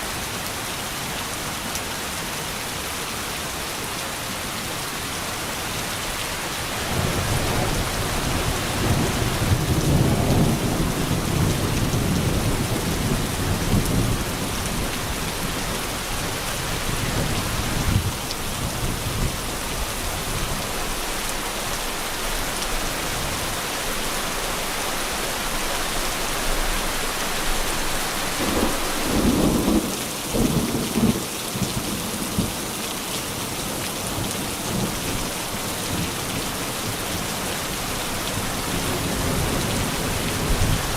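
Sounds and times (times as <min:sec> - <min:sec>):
heavy rain: 0:00.0 - 0:40.9
low thunder rumble: 0:06.8 - 0:21.4, 0:27.5 - 0:31.1.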